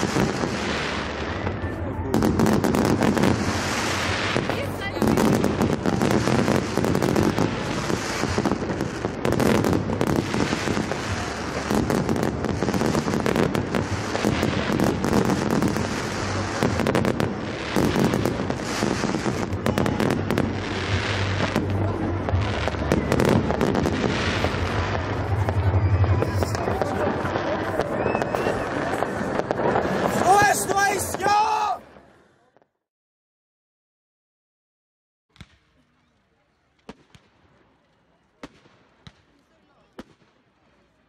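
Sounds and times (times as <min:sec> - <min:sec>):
fireworks banging: 0:00.0 - 0:32.0.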